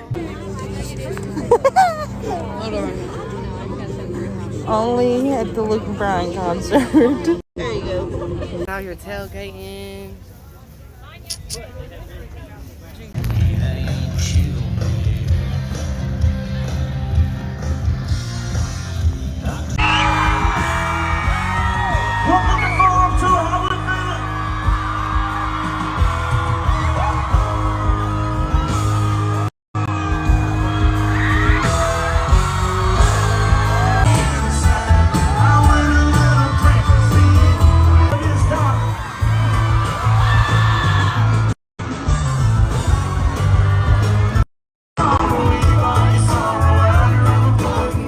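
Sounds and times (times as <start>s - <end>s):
people yelling and whooping: 1.0s - 4.8s, 19.8s - 29.5s, 30.3s - 44.4s
country music with singer: 13.2s - 29.4s, 30.0s - 44.4s, 45.0s - 48.0s.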